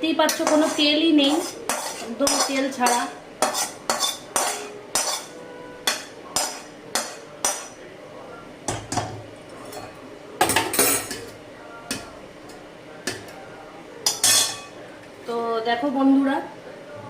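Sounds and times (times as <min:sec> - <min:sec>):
spoon clinking on a pan: 0:00.3 - 0:07.8, 0:14.0 - 0:14.8.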